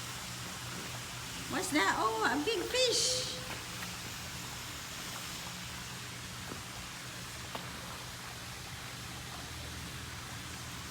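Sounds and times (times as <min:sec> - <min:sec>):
steady background hiss: 0:00.0 - 0:06.2.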